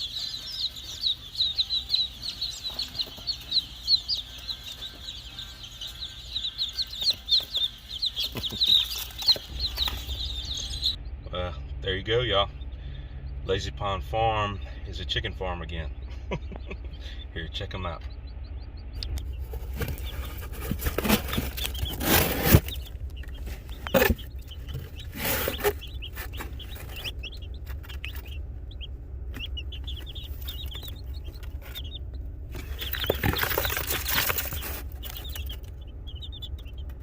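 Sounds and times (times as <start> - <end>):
chicks peeping: 0.0 - 37.0
handling rustles and knocks: 19.4 - 28.4, 29.3 - 35.8.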